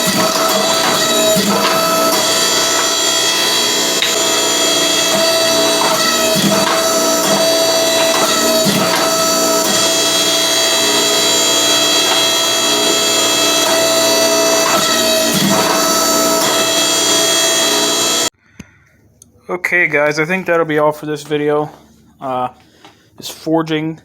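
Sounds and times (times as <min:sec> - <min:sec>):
press dies knocking: 0:00.0 - 0:18.2
hydraulic press whine: 0:00.0 - 0:18.3.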